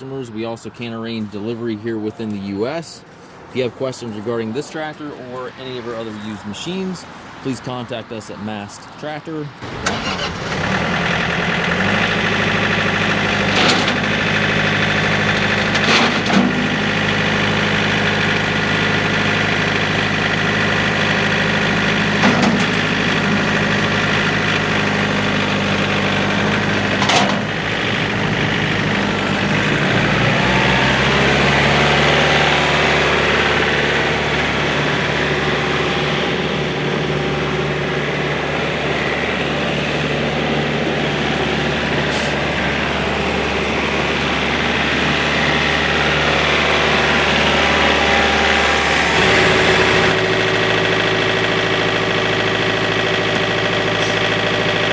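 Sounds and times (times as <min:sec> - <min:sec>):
tractor diesel engine running: 0:00.0 - 0:07.8, 0:08.5 - 0:54.9
short engine knocks: 0:22.2 - 0:23.4, 0:26.9 - 0:27.5.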